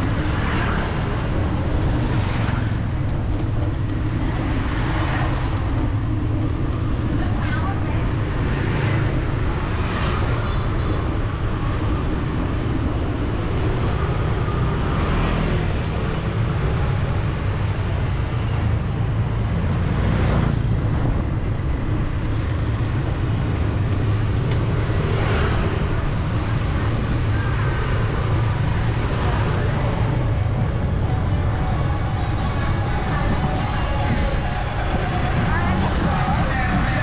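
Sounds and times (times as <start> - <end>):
low rumble of traffic: 0.0 - 37.0
vehicles passing by: 0.0 - 37.0.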